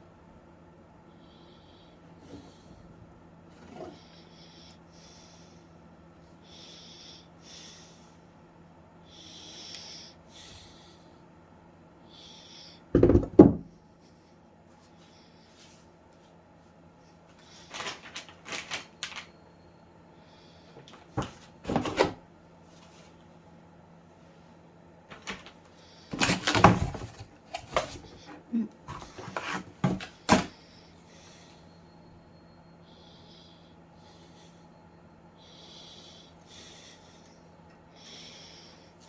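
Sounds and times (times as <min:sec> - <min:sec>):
packaging rustling: 0:17.6 - 0:19.3, 0:25.1 - 0:28.2.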